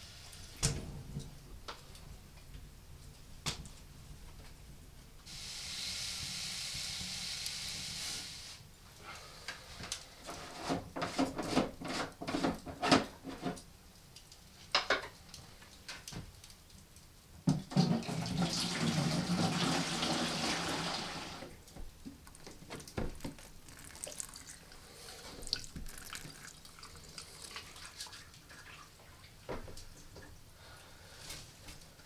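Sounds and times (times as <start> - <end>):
water pouring into a pot: 22.2 - 29.0.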